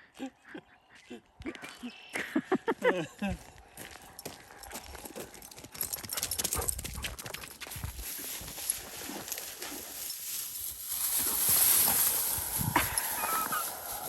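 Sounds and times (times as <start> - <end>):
dog footfalls pattering: 3.9 - 10.0
dry cattails crackling and rustling: 8.0 - 14.0.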